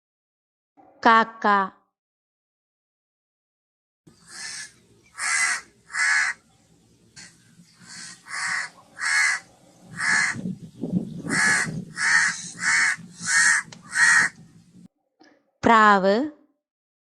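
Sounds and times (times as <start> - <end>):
crow cawing: 4.2 - 6.5, 7.2 - 10.5, 11.2 - 14.4.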